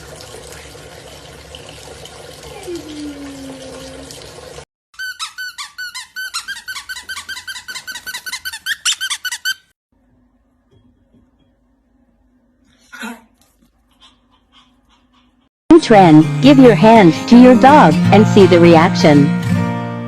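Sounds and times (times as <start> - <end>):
high-pitched squeaks: 5.0 - 9.7.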